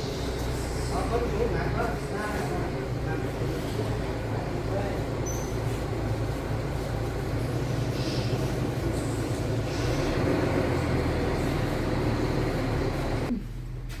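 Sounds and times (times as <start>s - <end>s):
low mechanical rumble with hum: 0.0s - 14.0s.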